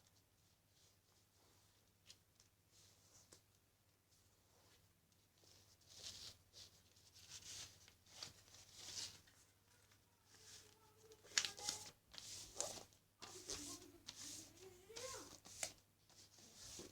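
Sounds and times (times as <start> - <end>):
paper being folded and creased: 5.4 - 16.9.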